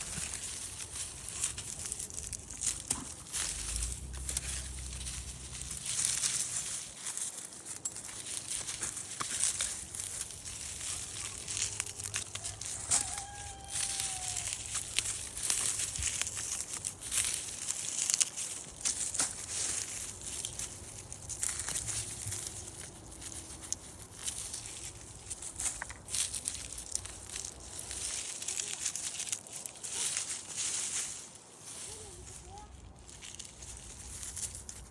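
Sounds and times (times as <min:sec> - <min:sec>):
dry plant material crackling: 0:00.0 - 0:34.9.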